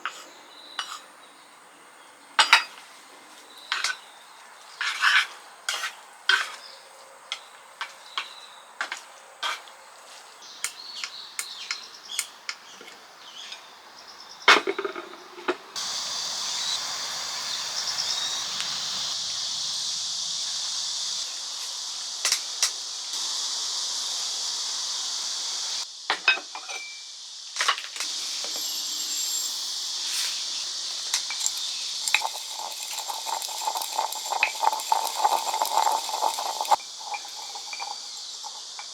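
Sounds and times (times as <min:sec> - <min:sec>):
steady hiss: 0:15.8 - 0:38.9.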